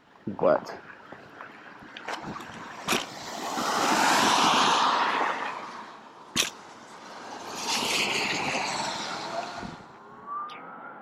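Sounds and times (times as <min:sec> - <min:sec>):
tyres hissing on wet road: 0:02.9 - 0:09.8.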